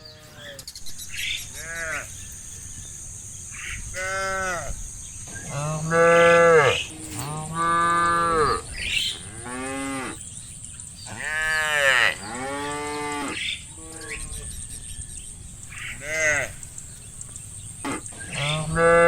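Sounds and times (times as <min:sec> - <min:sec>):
cattle mooing: 0:05.5 - 0:10.2, 0:11.1 - 0:14.5, 0:16.0 - 0:16.6, 0:17.8 - 0:19.0.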